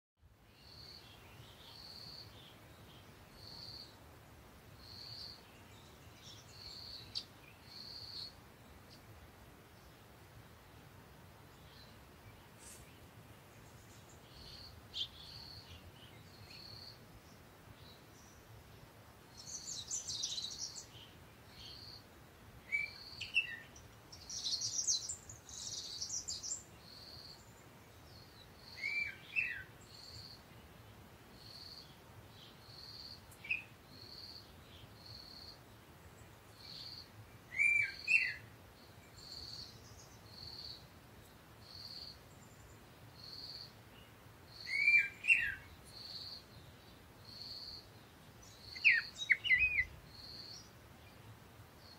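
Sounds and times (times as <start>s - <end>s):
bird high chirp: 19.4s - 22.0s, 22.7s - 27.5s, 28.6s - 30.4s, 36.6s - 38.4s, 44.6s - 46.4s, 48.4s - 50.7s
birds chattering: 48.4s - 50.7s.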